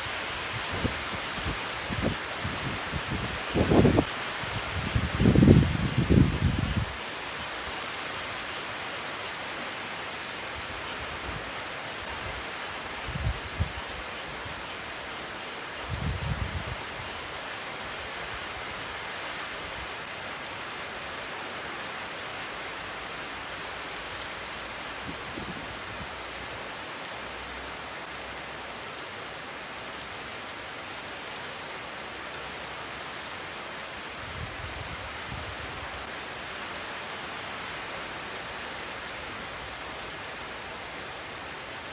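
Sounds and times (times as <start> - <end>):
rain falling: 0.0 - 41.9
wind buffeting microphone: 0.5 - 6.9.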